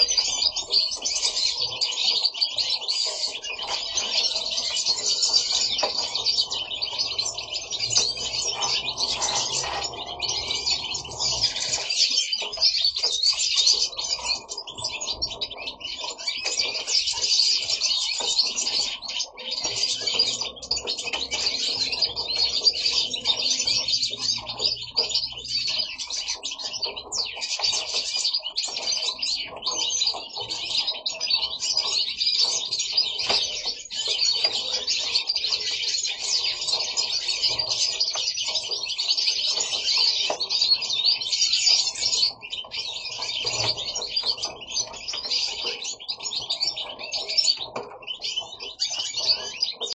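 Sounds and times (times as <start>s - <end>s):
goldfinches twittering song: 0.0s - 49.9s.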